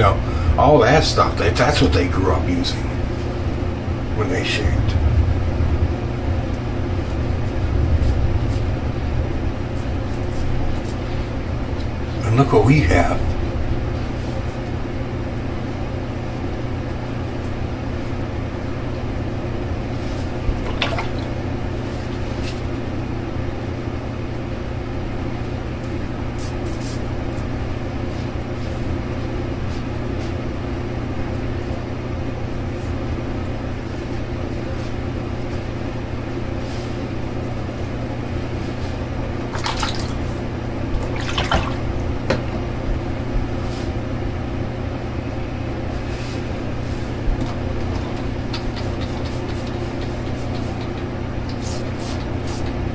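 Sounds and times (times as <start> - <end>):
steady low hum: 0.0 - 52.9
water splashes and drips: 20.6 - 21.3, 39.5 - 40.2, 41.0 - 41.9.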